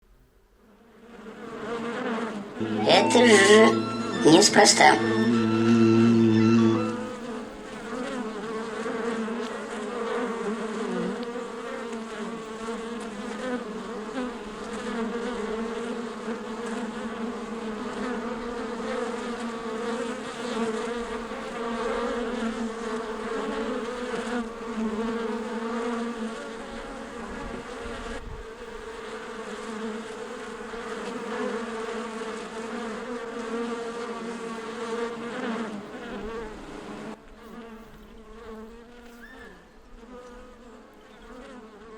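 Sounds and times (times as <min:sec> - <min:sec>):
bees buzzing: 0:01.9 - 0:13.2.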